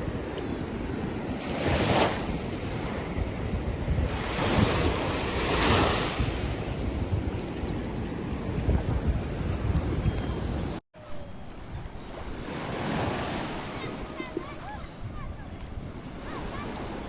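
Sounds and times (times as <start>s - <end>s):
wind buffeting microphone: 0.0s - 17.0s
waves breaking on rocks: 11.4s - 17.0s.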